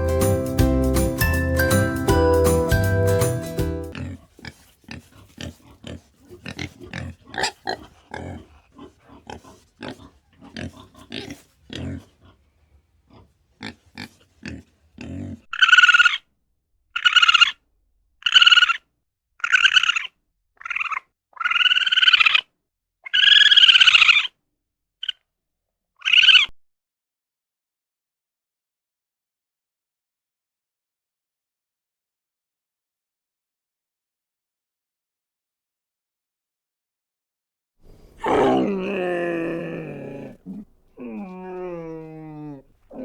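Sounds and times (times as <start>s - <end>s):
soft animal grunts: 3.9s - 15.5s, 37.9s - 43.0s
loud high animal calls: 15.5s - 16.2s, 17.0s - 17.6s, 19.4s - 22.4s, 23.1s - 24.3s, 38.1s - 43.0s.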